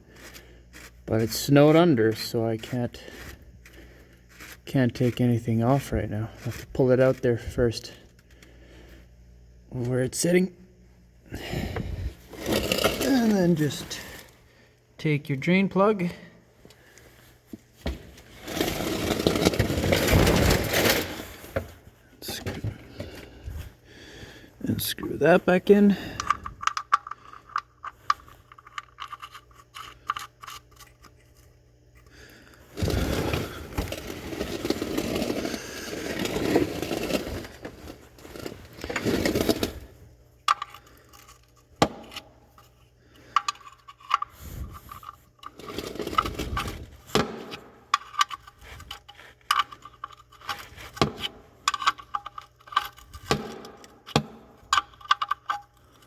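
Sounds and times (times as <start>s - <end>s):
loud scraping noise: 12.0s - 14.2s, 18.3s - 21.4s, 32.8s - 39.8s.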